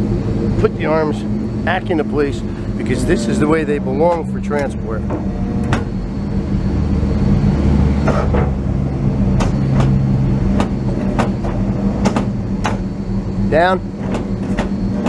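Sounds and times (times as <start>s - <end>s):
truck engine running: 0.0s - 15.0s
sharp clicks and knocks: 4.1s - 6.0s, 9.3s - 12.9s, 14.0s - 15.0s.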